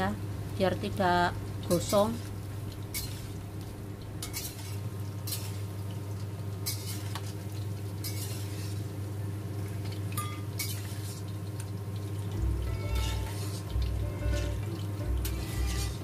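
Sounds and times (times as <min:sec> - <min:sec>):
chicken sizzling in hot oil: 0:00.0 - 0:16.0
metal utensils scraping a wok: 0:02.9 - 0:03.4, 0:04.2 - 0:05.6, 0:06.6 - 0:07.2, 0:08.0 - 0:08.8, 0:10.2 - 0:11.2, 0:12.7 - 0:16.0
low hum: 0:12.3 - 0:16.0.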